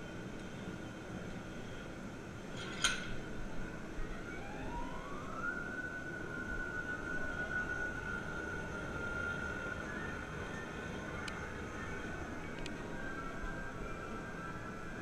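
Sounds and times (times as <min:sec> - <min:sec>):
whining tone rising in pitch: 0:03.8 - 0:15.0.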